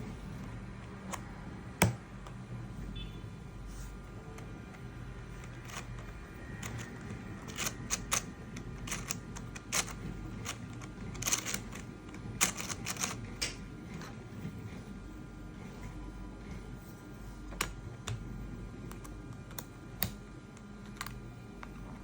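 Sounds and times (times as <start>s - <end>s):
steady low hum: 0.0s - 22.0s
plastic parts clicking: 4.4s - 13.6s.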